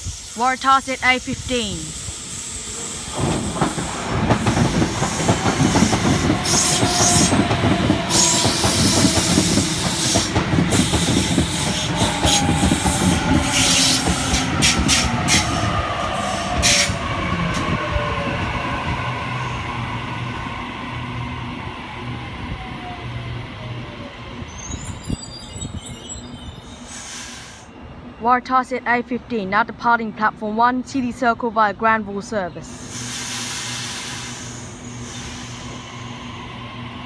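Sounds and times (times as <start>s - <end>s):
train wheels clattering over rails: 3.1s - 17.7s.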